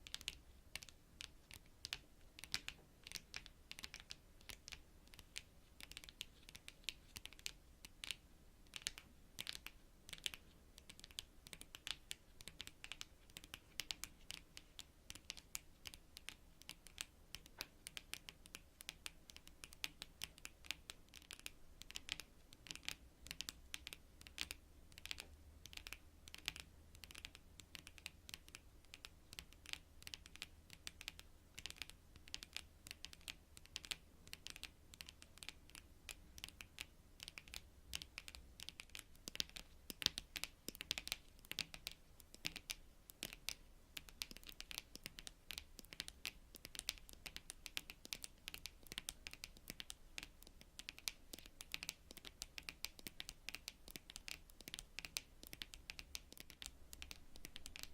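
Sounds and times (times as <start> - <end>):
fingernails tapping on cards: 36.4 - 57.9.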